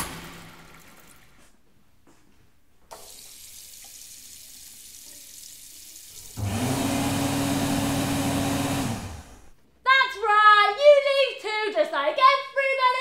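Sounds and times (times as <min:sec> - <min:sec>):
water running: 0:02.9 - 0:08.3
electric hand dryer: 0:06.2 - 0:09.5.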